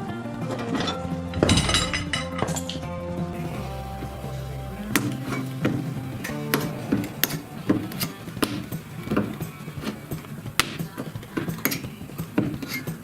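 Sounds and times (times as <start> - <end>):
background music: 0.0 - 13.0
hand tools tapping sheet metal: 3.4 - 13.0.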